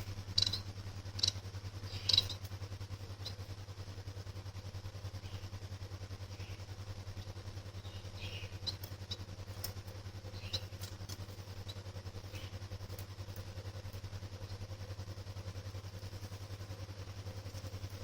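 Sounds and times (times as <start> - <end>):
steady low hum: 0.0 - 18.0
finch chirping: 0.3 - 2.5, 6.2 - 12.7.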